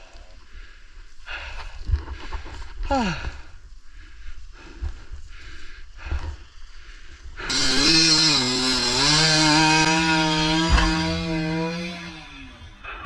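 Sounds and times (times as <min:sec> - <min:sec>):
dirt bike engine under throttle: 0:07.4 - 0:13.0.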